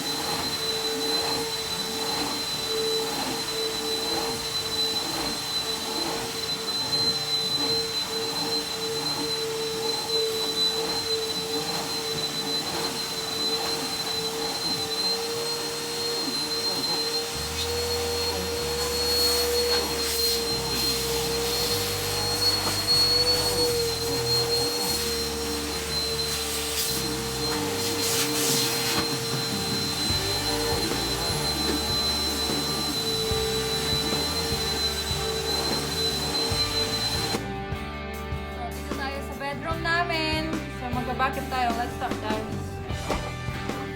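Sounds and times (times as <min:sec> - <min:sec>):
vacuum cleaner whine: 0:00.0 - 0:37.8, 0:39.6 - 0:43.9.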